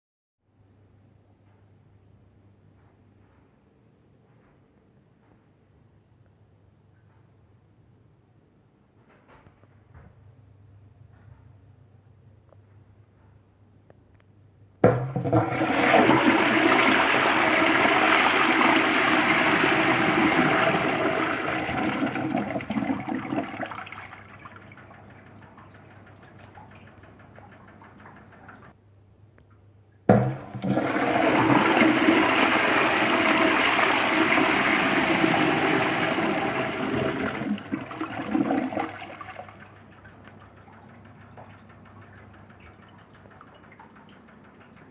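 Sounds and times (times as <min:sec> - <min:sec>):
toilet flushing: 0:14.8 - 0:28.8, 0:30.1 - 0:44.9
water trickling: 0:15.2 - 0:28.7, 0:30.3 - 0:44.9.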